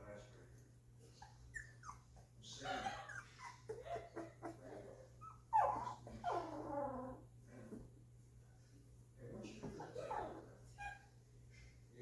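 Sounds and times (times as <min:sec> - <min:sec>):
puppies whimpering and squealing: 0:01.1 - 0:07.3.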